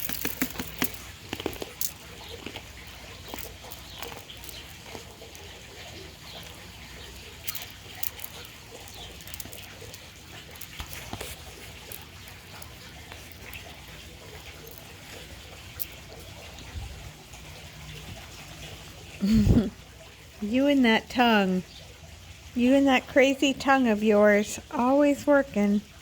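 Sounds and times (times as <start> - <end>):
sharp clicks and taps: 0.0 - 2.7.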